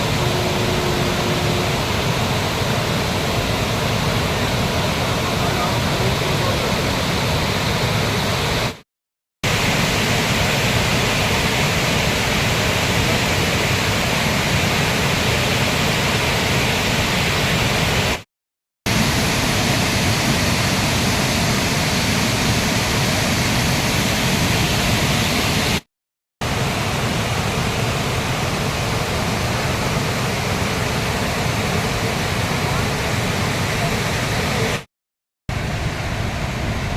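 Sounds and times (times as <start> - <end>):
floodwater rushing and churning: 0.0 - 8.8, 9.5 - 18.2, 26.4 - 34.9.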